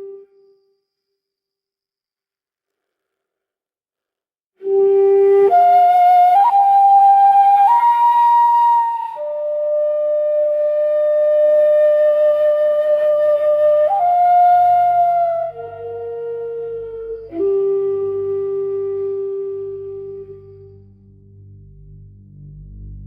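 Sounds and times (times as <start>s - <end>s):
breathy bamboo flute melody: 0.0s - 1.1s, 4.6s - 23.0s
faint low drone: 15.6s - 23.0s.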